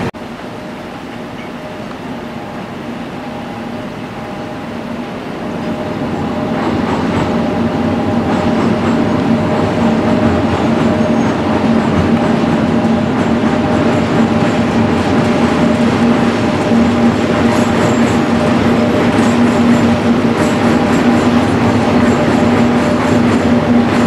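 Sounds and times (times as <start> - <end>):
electric locomotive hum: 0.0 - 24.0
wheels rumbling on rail: 0.0 - 24.0.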